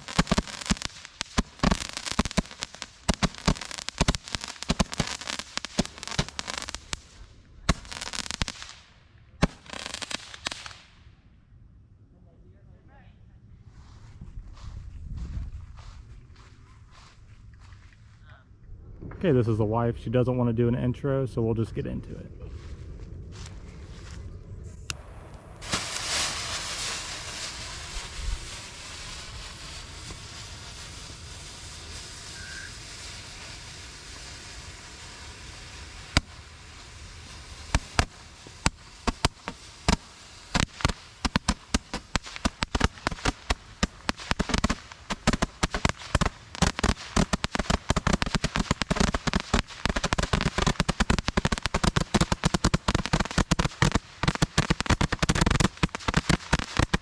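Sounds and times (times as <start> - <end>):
fireworks hissing: 0.0 - 11.0, 23.4 - 57.0
fireworks cracking: 0.0 - 11.1, 24.8 - 57.0.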